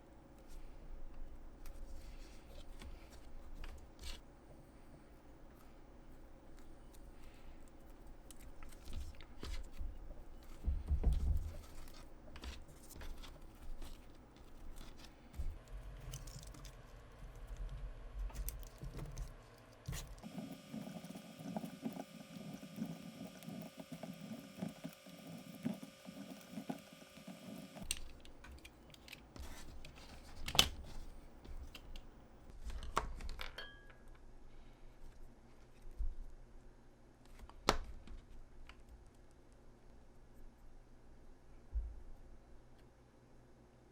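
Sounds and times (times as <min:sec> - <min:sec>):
materials clicking and rustling: 0:06.4 - 0:33.6.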